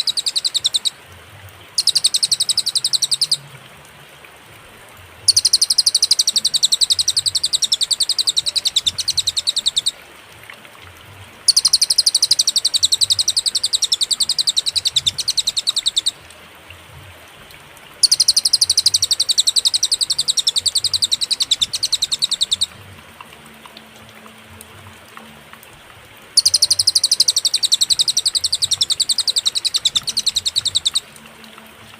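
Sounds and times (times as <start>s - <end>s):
bird trilling high notes: 0.0s - 1.0s, 1.8s - 3.4s, 5.3s - 10.0s, 11.5s - 16.2s, 18.0s - 22.7s, 26.4s - 31.0s.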